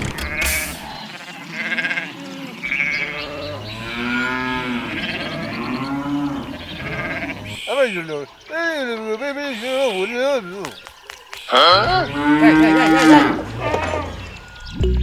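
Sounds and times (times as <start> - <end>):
farm animals bleating: 0.1 - 10.7, 11.4 - 14.5.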